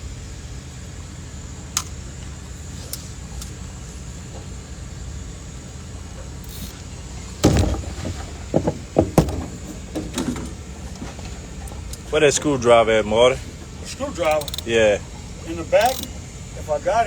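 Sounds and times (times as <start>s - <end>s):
gear knocking against boat: 3.1s - 17.0s
light clicks: 13.5s - 16.6s.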